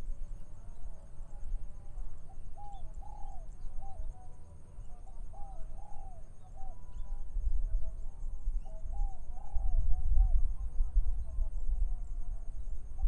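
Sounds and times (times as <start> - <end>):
dove cooing: 2.3 - 7.2
wind on microphone: 7.0 - 13.0.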